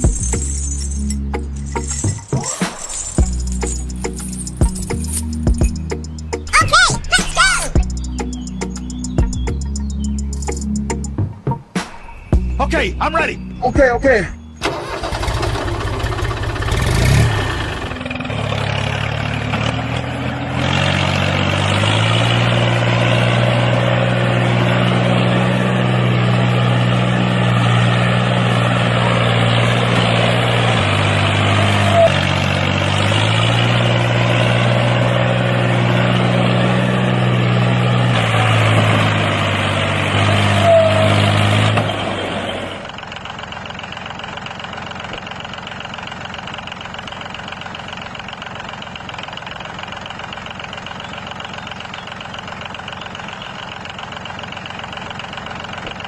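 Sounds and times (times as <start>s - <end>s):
small tractor engine revving: 14.2s - 56.0s.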